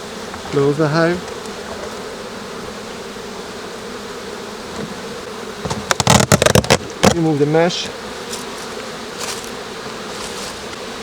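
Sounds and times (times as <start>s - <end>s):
bees buzzing: 0.0s - 11.0s
knocks of hive parts handled: 5.6s - 7.4s, 8.3s - 10.8s.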